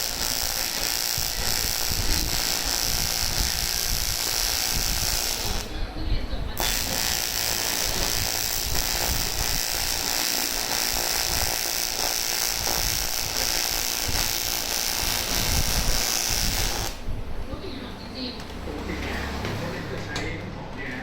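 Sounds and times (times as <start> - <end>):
welding arc buzzing and hissing: 0.0 - 5.8, 6.5 - 17.1.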